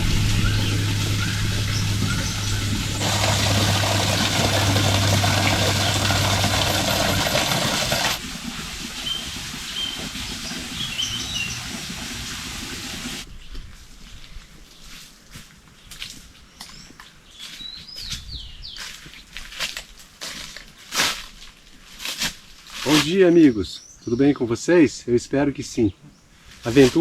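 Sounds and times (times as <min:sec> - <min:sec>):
high bird chirps: 0:00.0 - 0:03.0, 0:09.8 - 0:11.7
steady rushing noise: 0:00.0 - 0:08.2
low hum: 0:00.0 - 0:11.8.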